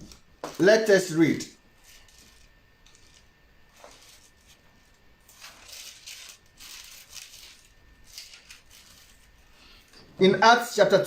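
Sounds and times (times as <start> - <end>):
faint paper rustling: 1.8 - 10.0.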